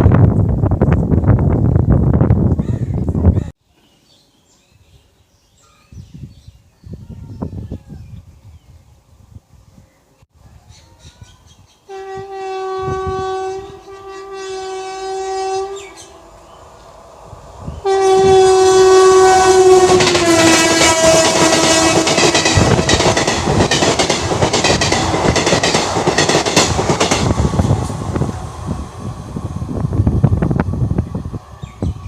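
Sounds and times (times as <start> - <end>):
locomotive air horn blasts: 11.9 - 16.1, 17.8 - 23.0
train wheels clickety-clack: 19.9 - 27.9.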